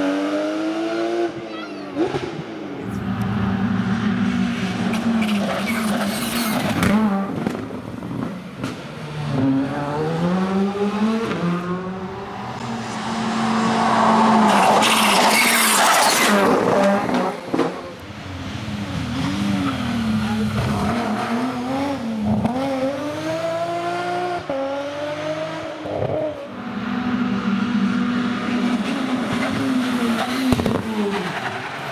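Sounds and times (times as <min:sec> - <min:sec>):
rally car engine revving: 0:02.0 - 0:31.9
tyres skidding: 0:02.8 - 0:07.1, 0:10.8 - 0:21.7.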